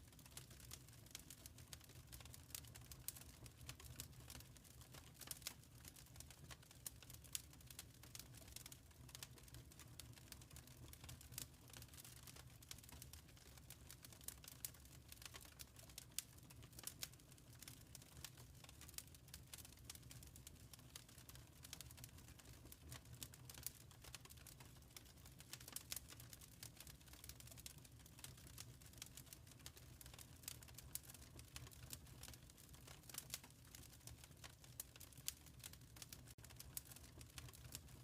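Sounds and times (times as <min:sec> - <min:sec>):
wood fire crackling: 0:00.1 - 0:38.0.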